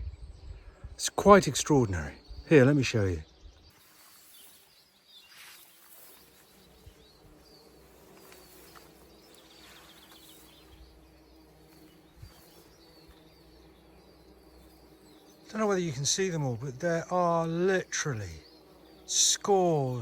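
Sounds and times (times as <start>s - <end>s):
small birds chirping: 0.0s - 20.0s
bumblebees buzzing: 0.2s - 20.0s.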